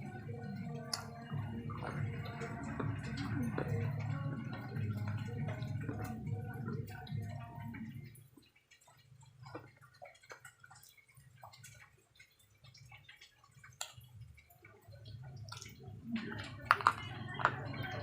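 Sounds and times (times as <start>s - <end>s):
low steady hum: 0.0s - 9.8s
chewing clicks and crunches: 0.5s - 18.0s.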